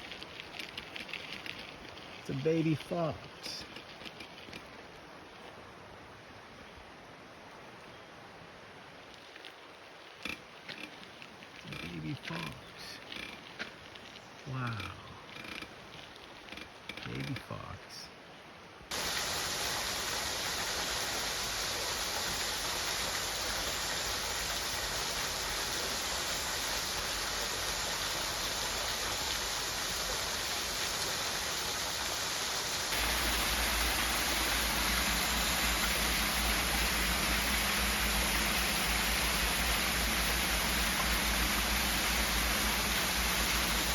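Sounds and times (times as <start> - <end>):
steady rushing noise: 31.6 - 43.9.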